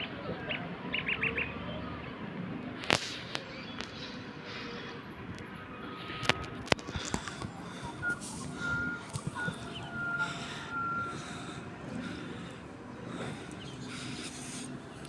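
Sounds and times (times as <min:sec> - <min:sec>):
reversing alarm beeping: 0:07.0 - 0:13.4.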